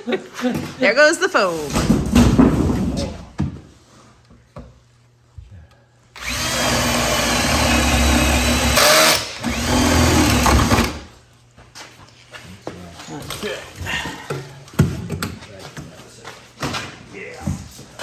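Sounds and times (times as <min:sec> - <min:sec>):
power drill running: 0:06.2 - 0:11.1.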